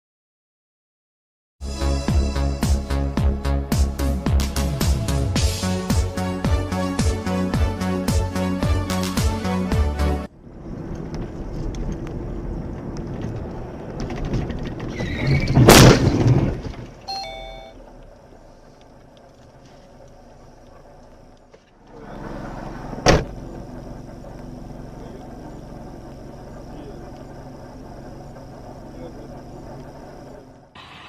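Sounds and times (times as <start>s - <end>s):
car driving: 3.4s - 31.0s
loud crash: 15.2s - 16.9s
short beeps: 17.1s - 17.8s.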